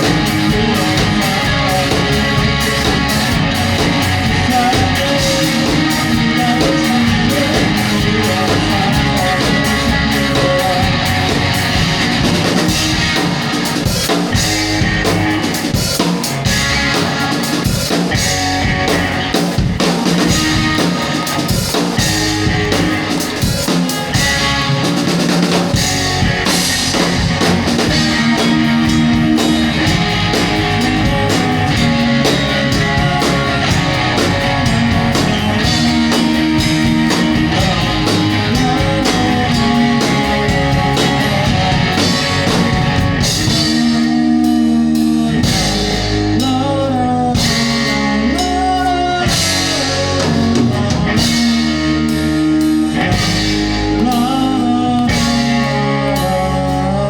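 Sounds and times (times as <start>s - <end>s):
person singing: 0.0s - 13.2s, 25.7s - 57.0s
drum kit: 0.0s - 57.0s
electric guitars: 0.0s - 57.0s.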